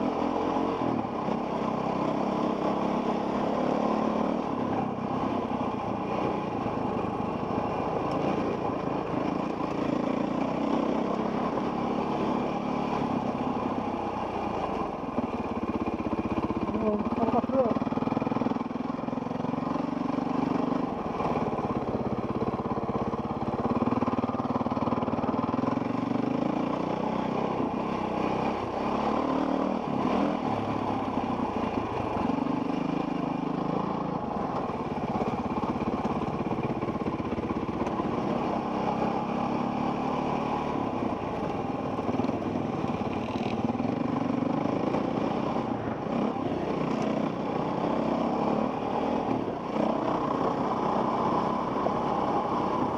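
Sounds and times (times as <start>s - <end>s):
dirt bike engine revving: 23.7s - 36.2s.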